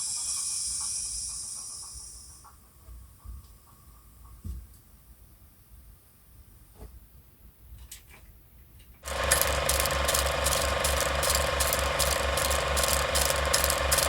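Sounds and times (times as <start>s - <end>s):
diesel locomotive engine running: 9.0s - 14.0s.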